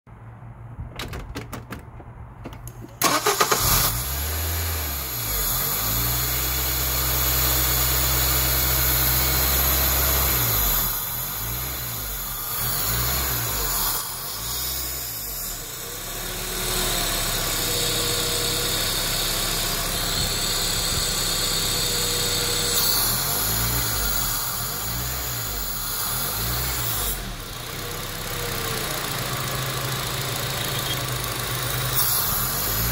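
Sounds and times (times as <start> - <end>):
car engine starting: 0.6 - 32.9
car engine idle surging: 15.2 - 32.9.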